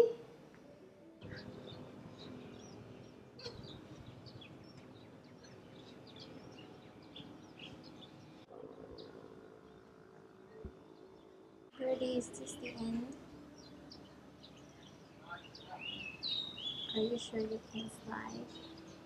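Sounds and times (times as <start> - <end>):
small birds chirping: 1.2 - 9.1, 11.8 - 19.0.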